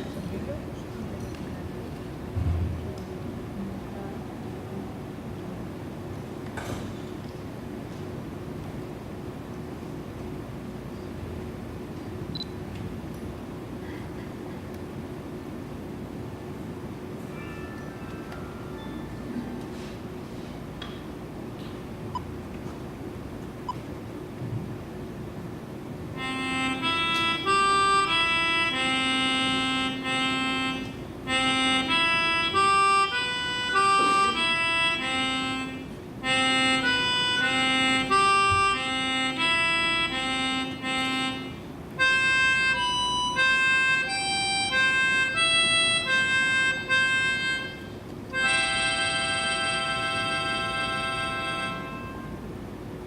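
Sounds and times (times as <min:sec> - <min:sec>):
slow reed instrument tune: 0:17.3 - 0:19.6, 0:26.2 - 0:52.5.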